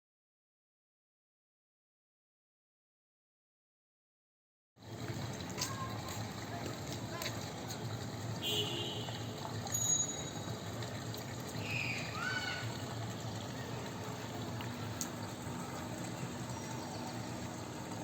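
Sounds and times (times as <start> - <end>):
rainwater pouring and trickling: 4.8 - 18.0.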